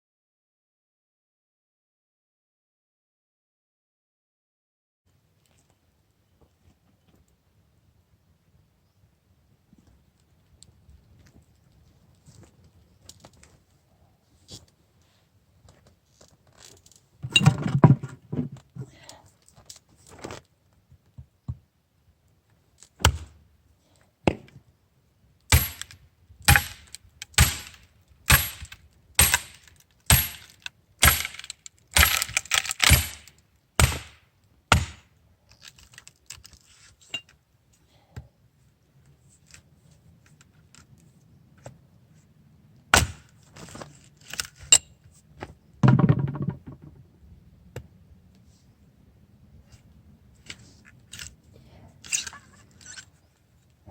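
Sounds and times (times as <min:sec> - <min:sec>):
sharp knocks with metallic ring: 0:25.5 - 0:35.0.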